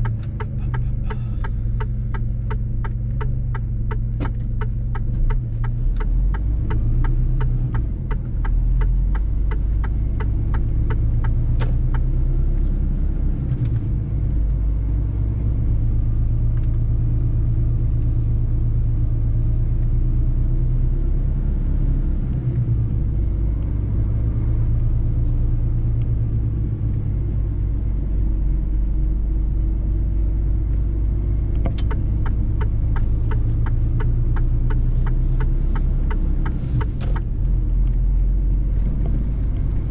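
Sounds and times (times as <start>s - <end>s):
regular ticking: 0.0s - 12.1s, 31.5s - 38.0s
truck diesel engine rumbling: 0.0s - 39.9s.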